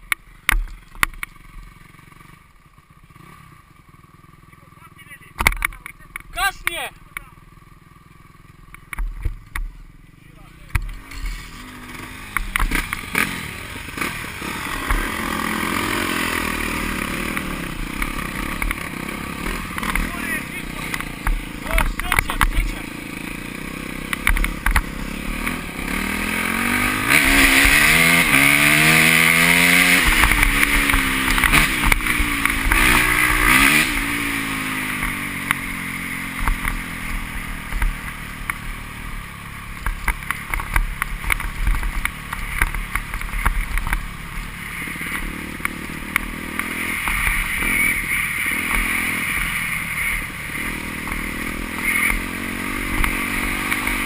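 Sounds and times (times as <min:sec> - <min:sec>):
motocross bikes racing past: 0:10.3 - 0:54.0.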